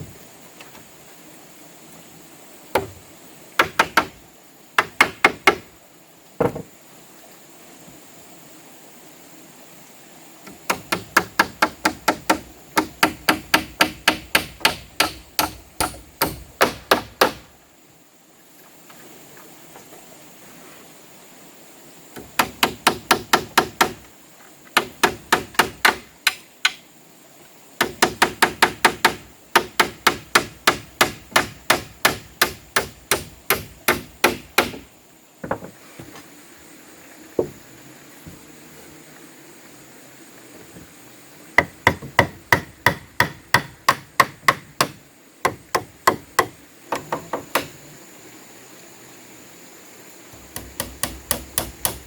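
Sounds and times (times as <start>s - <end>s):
hammer striking wood: 2.8s - 3.0s, 3.6s - 4.2s, 4.8s - 5.7s, 10.6s - 17.5s, 22.2s - 24.0s, 24.8s - 26.8s, 27.8s - 35.7s, 41.6s - 47.8s, 50.4s - 52.0s.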